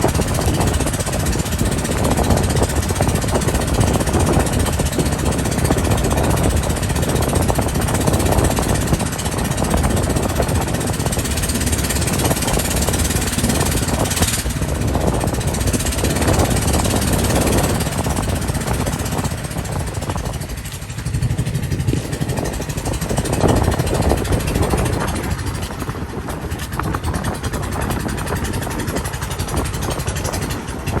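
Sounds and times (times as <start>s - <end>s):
boat engine rumbling: 0.0s - 31.0s
wind buffeting microphone: 0.0s - 31.0s.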